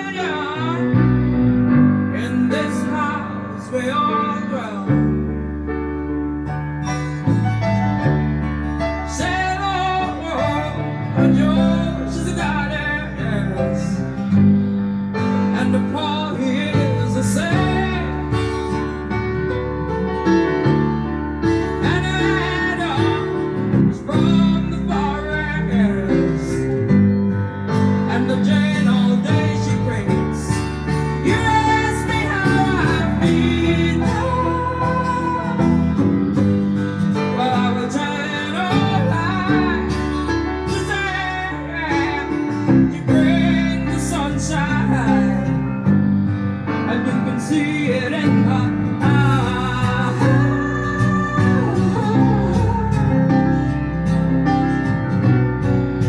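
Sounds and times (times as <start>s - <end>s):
guitar accompaniment: 0.0s - 56.0s
woman singing: 31.2s - 36.1s, 47.4s - 53.6s.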